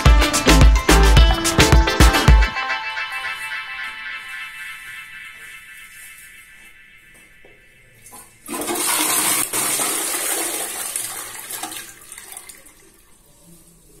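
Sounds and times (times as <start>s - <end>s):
water rushing into toilet bowl: 8.4s - 13.2s.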